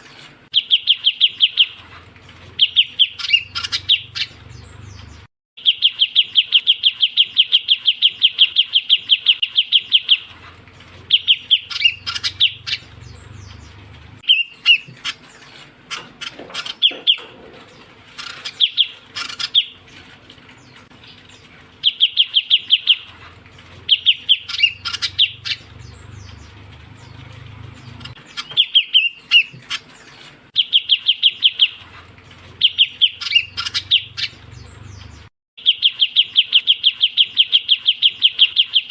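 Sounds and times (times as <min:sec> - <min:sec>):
low hum: 0:10.1 - 0:14.3, 0:16.9 - 0:28.3.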